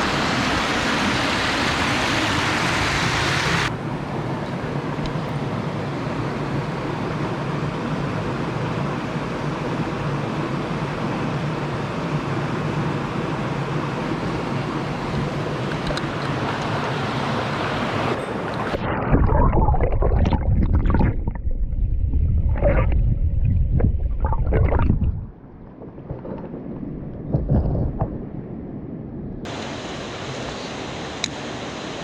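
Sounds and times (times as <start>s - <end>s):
stream water running: 0.0s - 3.8s, 13.7s - 27.9s, 29.4s - 32.0s.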